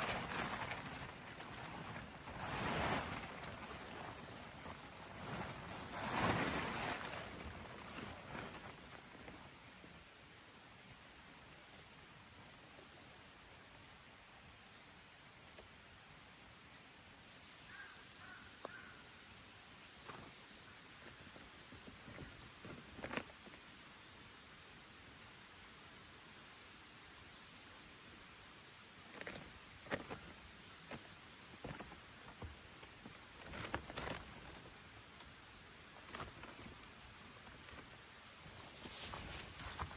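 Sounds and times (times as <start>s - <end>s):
short rustles and clicks: 0.0s - 9.4s, 29.1s - 39.9s
high-pitched insect chorus: 0.0s - 39.9s.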